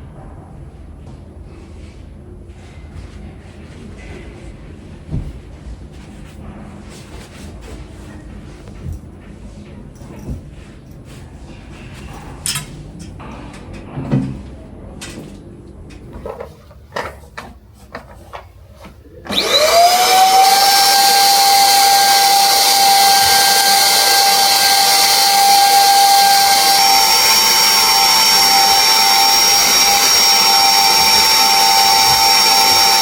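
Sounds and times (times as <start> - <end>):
vacuum cleaner running: 19.2 - 33.0.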